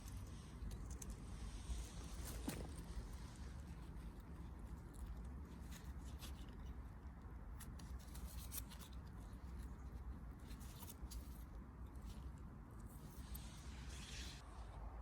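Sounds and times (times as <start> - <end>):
leaves and twigs rustling: 0.0 - 14.3.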